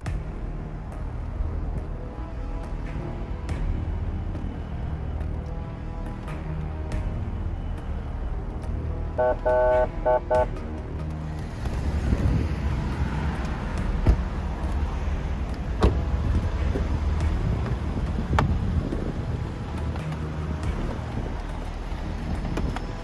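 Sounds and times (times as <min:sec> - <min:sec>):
car engine and road rumble: 0:00.0 - 0:23.0
short horn blasts: 0:09.2 - 0:10.6.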